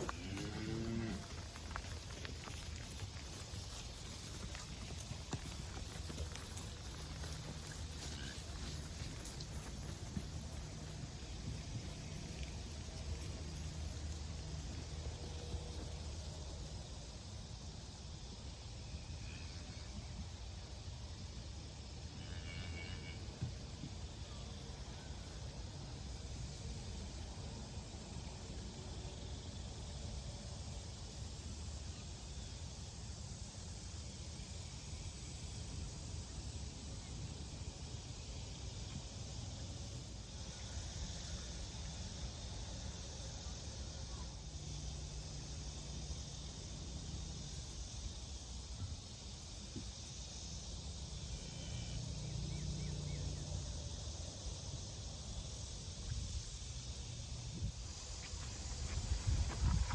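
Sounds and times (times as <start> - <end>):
insect hiss: 0.0 - 59.9
wind rumble on microphone: 57.3 - 59.9.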